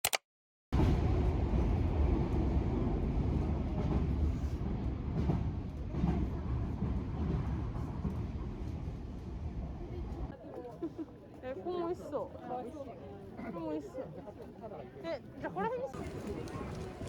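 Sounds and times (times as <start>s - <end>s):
train rumbling: 0.8s - 10.3s.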